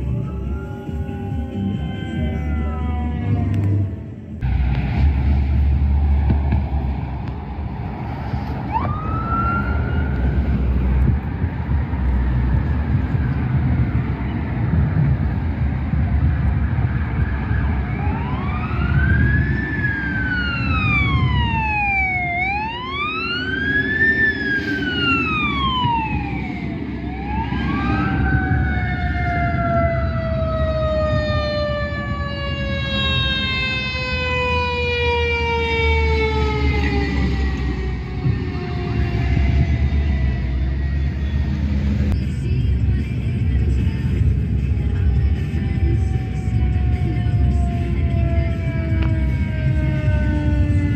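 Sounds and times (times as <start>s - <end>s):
fire truck siren wailing: 0.0s - 42.2s, 44.9s - 50.9s
truck engine rumble: 0.0s - 50.9s.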